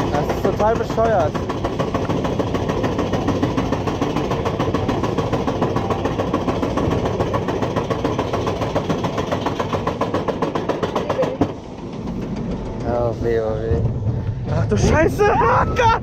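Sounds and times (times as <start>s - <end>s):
low rumble: 11.5s - 16.0s.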